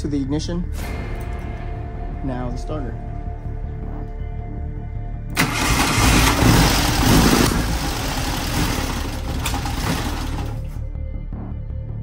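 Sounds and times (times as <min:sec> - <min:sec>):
car engine starting and idling: 0:05.3 - 0:10.8.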